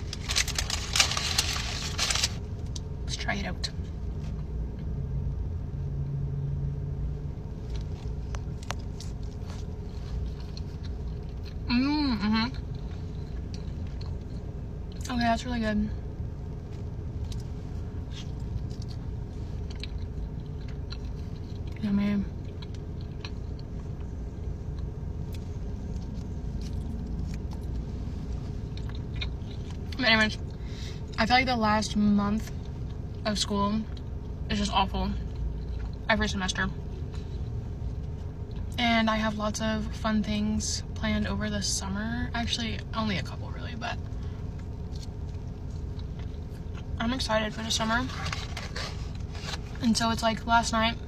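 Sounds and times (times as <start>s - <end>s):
low engine rumble: 0.0s - 51.0s.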